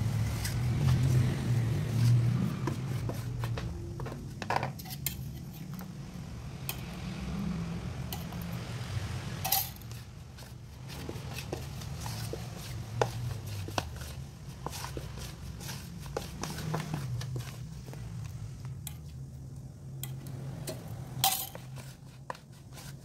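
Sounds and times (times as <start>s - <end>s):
spoon scraping through flour: 0.1s - 3.7s, 9.4s - 19.2s, 20.1s - 23.0s
spoon clinking against bowl: 9.4s - 9.8s.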